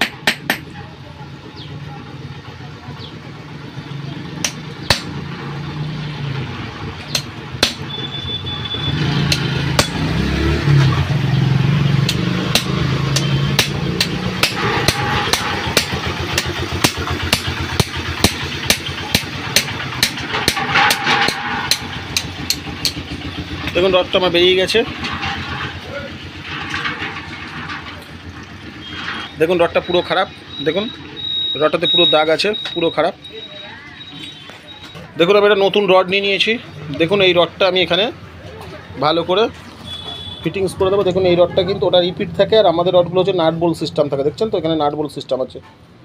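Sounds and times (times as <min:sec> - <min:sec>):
hammer striking metal: 0:00.0 - 0:00.7, 0:04.4 - 0:05.2, 0:07.0 - 0:08.0, 0:09.3 - 0:10.1, 0:12.0 - 0:23.8
engine hum: 0:00.0 - 0:45.0.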